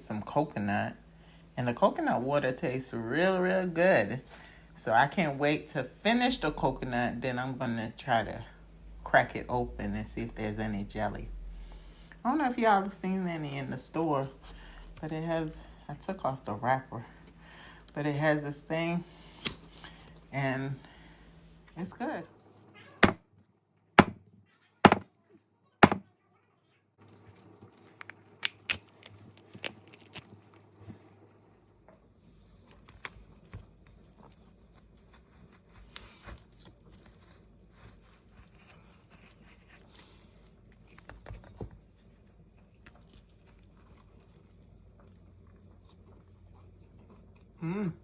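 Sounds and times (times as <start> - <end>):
coconut being knocked: 24.0 - 24.2, 24.9 - 25.1, 25.8 - 26.0.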